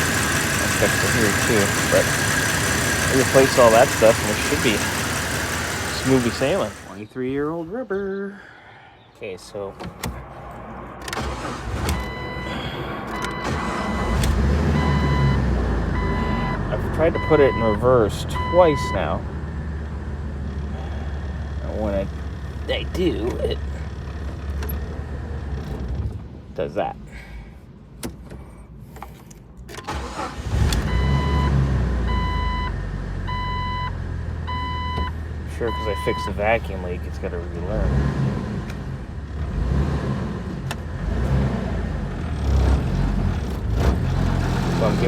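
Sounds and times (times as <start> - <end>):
car engine rumbling: 0.0 - 45.0
dashboard warning chime: 12.0 - 19.1, 33.3 - 35.1, 35.7 - 36.4.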